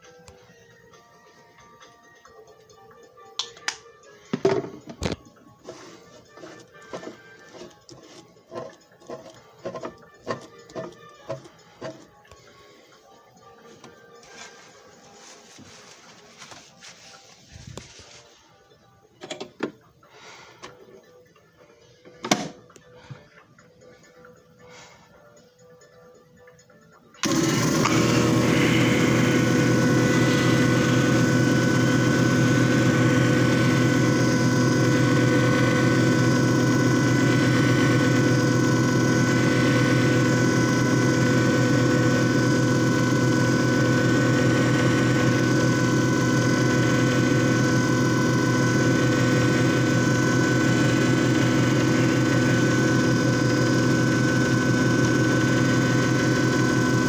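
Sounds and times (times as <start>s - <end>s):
constant whine: 27.2s - 57.0s
machine motor humming: 27.2s - 57.0s.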